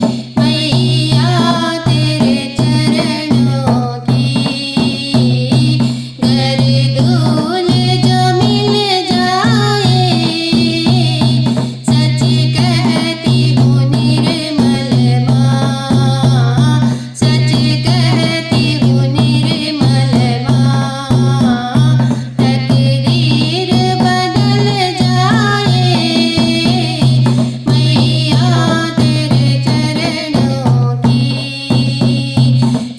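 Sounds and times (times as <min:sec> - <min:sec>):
hand drum beat: 0:00.0 - 0:32.9
person singing: 0:00.1 - 0:32.8.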